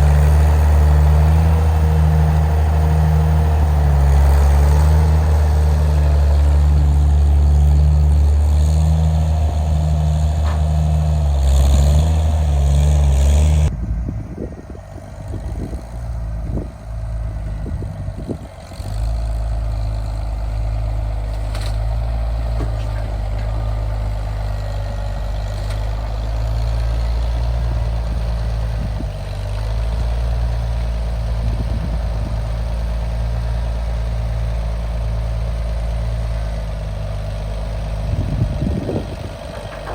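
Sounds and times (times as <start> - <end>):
engine running: 0.0 - 39.9
irregular knocks and clunks: 22.5 - 23.7, 39.5 - 39.9.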